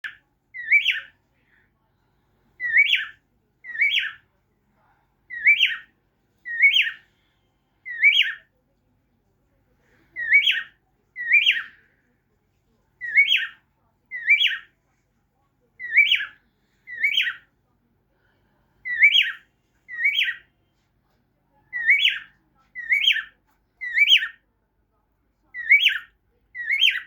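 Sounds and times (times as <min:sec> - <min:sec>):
cockatiel whistling: 0:00.6 - 0:01.1, 0:02.6 - 0:04.2, 0:05.3 - 0:05.9, 0:06.5 - 0:07.0, 0:07.9 - 0:08.4, 0:10.2 - 0:11.7, 0:13.0 - 0:13.6, 0:14.2 - 0:14.7, 0:15.8 - 0:16.4, 0:17.0 - 0:17.4, 0:18.9 - 0:20.4, 0:21.8 - 0:24.4, 0:25.6 - 0:27.0.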